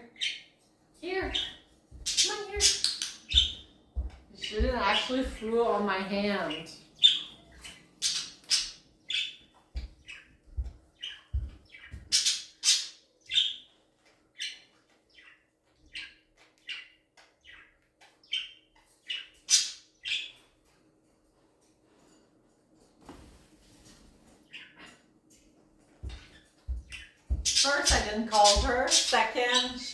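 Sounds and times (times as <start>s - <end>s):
parrot chirping and squawking: 0.1s - 3.8s, 6.4s - 10.3s, 11.0s - 20.5s, 24.4s - 25.0s, 26.0s - 29.9s
soft low thumps: 3.3s - 5.8s, 9.7s - 12.1s, 26.0s - 29.8s.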